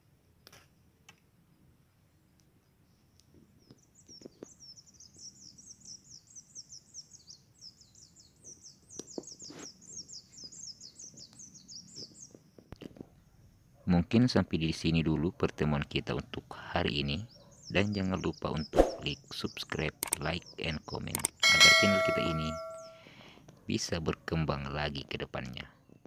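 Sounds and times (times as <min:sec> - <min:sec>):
small bird trilling: 0:21.3 - 0:23.0.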